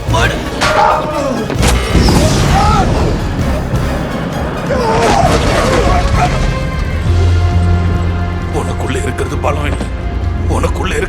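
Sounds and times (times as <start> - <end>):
dramatic film music: 0.0 - 11.0
booms and crashing impacts: 1.5 - 7.9.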